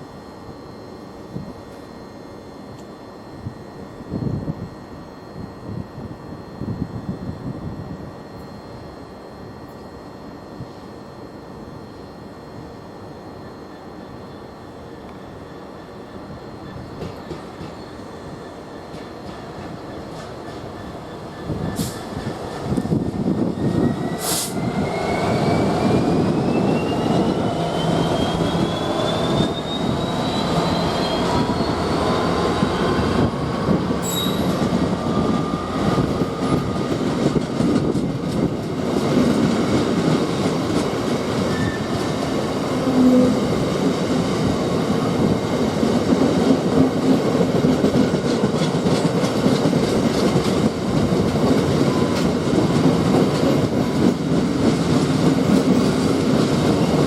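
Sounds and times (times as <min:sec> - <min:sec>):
train wheels rumbling on track: 0:12.9 - 0:57.0
thin rising whine: 0:22.8 - 0:37.3.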